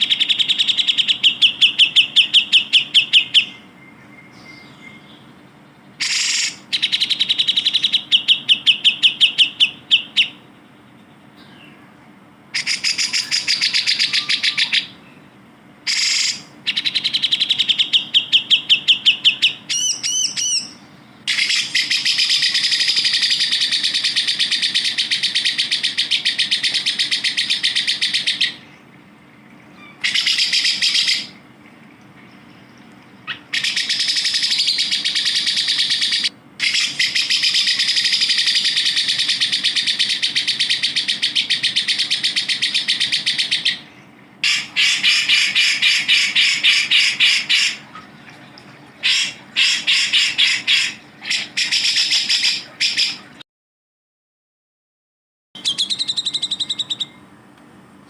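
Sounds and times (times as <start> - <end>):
bird chattering trills: 0.0 - 11.8, 12.5 - 15.3, 15.9 - 28.8, 29.7 - 31.4, 32.5 - 48.0, 49.0 - 53.3, 55.6 - 57.2
bird whistled notes: 12.6 - 14.9, 15.9 - 28.6, 55.6 - 57.2.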